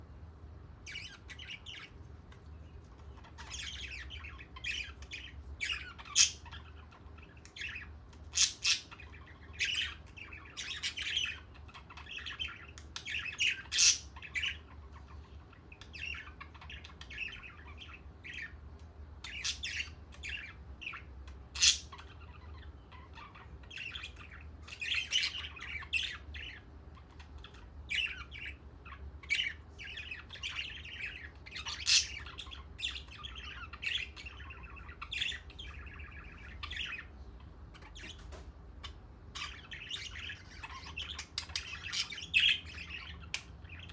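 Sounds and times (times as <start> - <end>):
faint low hum: 0.0 - 43.9
budgerigars chattering and squawking: 0.8 - 43.9.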